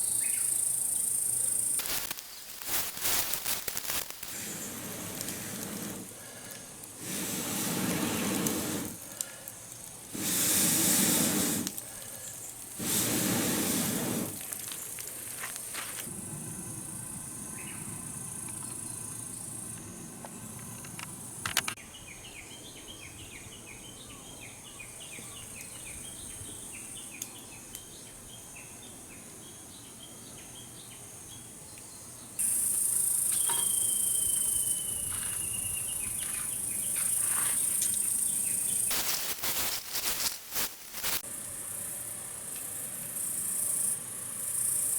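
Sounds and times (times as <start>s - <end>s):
insects chirping: 0.0s - 21.8s, 24.7s - 44.9s
steady high hiss: 0.0s - 21.8s, 32.4s - 44.9s
bursts of rushing noise: 1.8s - 6.1s, 38.9s - 41.2s
held whistle-like call: 33.6s - 36.0s.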